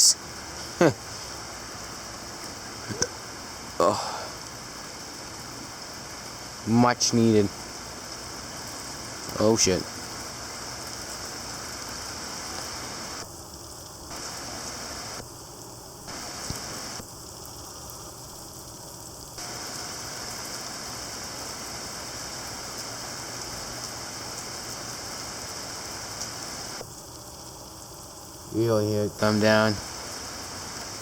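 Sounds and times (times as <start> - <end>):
heavy rain pouring: 0.0 - 31.0.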